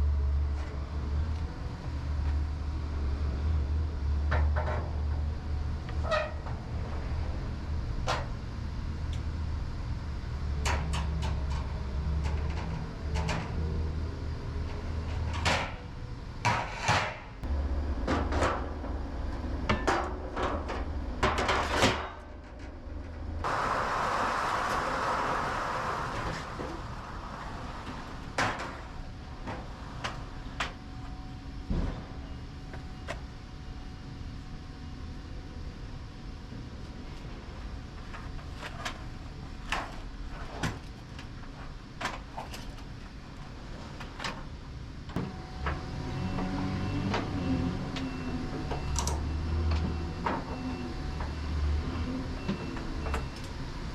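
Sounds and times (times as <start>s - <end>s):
hissing rush: 23.4s - 29.0s.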